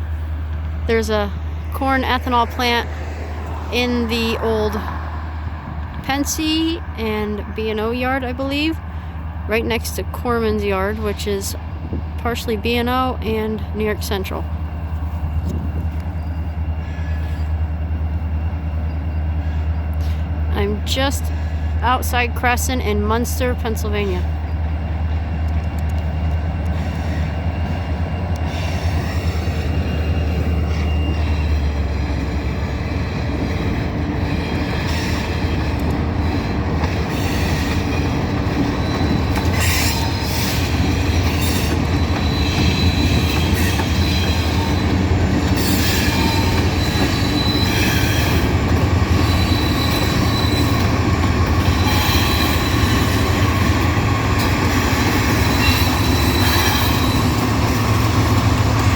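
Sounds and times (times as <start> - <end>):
train wheels squealing on rails: 14.6 - 20.5, 25.6 - 58.9
wheels clacking over rail joints: 24.4 - 58.9.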